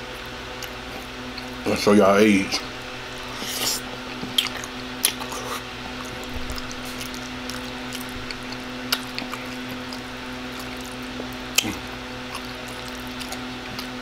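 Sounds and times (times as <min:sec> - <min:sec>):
steady low hum: 0:00.0 - 0:14.0
wet chewing and mouth sounds: 0:03.2 - 0:14.0.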